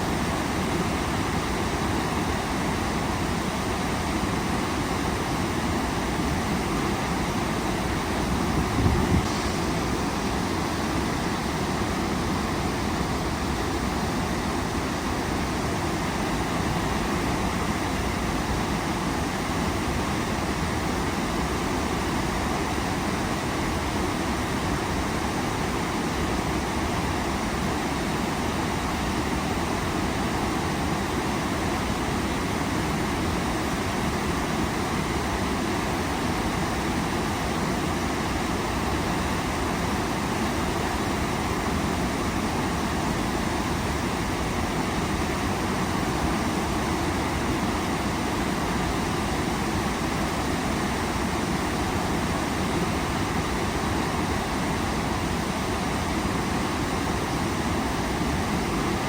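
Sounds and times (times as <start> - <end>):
waterfall rushing: 7.7 - 19.5.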